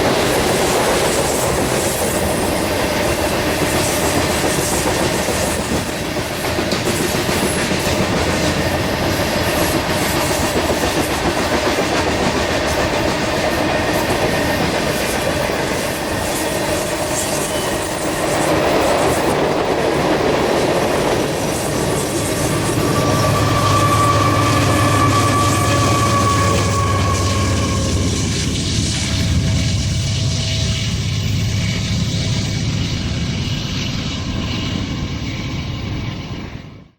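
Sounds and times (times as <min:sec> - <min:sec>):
wheels clacking on rail joints: 0:00.0 - 0:29.8
train cars rumbling: 0:00.0 - 0:36.6
humming tone: 0:21.7 - 0:33.4.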